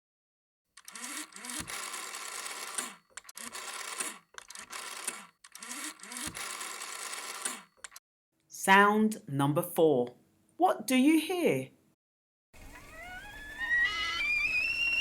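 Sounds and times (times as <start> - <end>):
rotary telephone dial whirring: 0.8 - 8.0.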